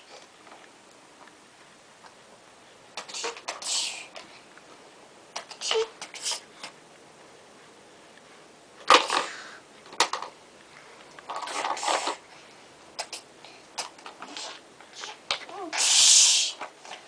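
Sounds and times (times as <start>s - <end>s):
toys clattering: 8.9s - 10.4s, 11.2s - 12.2s
toys rattling: 8.9s - 10.4s, 11.2s - 12.2s.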